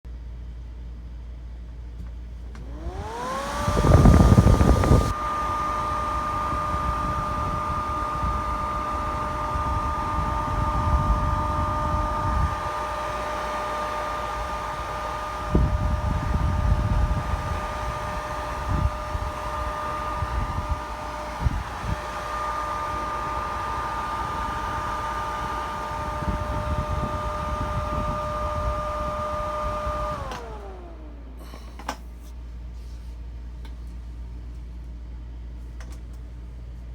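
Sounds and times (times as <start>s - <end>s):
exhaust blower whining: 2.0s - 34.6s
gusty rushing noise: 2.8s - 12.7s.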